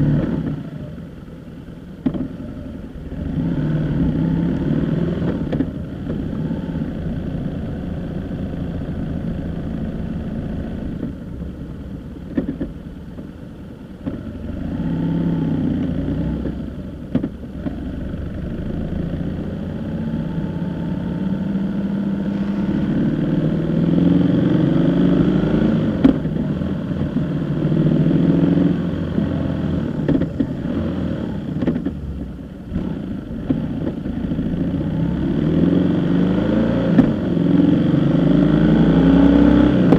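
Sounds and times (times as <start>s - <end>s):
vehicle engine accelerating: 0.0s - 1.3s, 2.0s - 12.8s, 14.0s - 39.9s
road noise: 0.0s - 39.9s.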